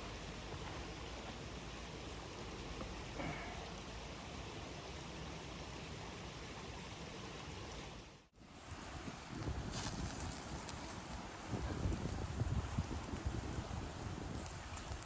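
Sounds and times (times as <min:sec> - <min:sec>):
rushing storm noise: 0:08.6 - 0:15.0.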